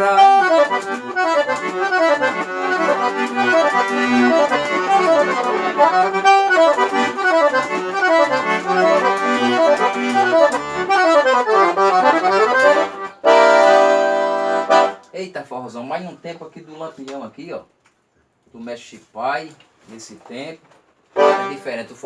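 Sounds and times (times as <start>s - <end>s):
accordion playing fast runs: 0.0s - 15.0s, 21.2s - 21.7s.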